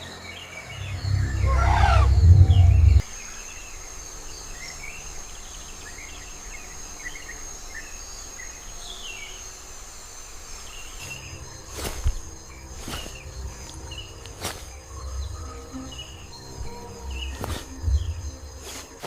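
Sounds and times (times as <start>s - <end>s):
bird chirps: 0.0s - 3.0s
loud low rumble: 0.6s - 3.0s
high-pitched insect trill: 0.7s - 19.0s.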